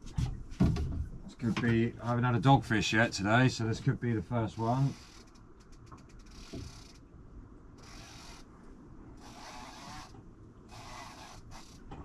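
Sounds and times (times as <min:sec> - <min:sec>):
fishing reel ratcheting whirr: 0:04.8 - 0:07.0, 0:07.8 - 0:08.5, 0:09.2 - 0:11.9.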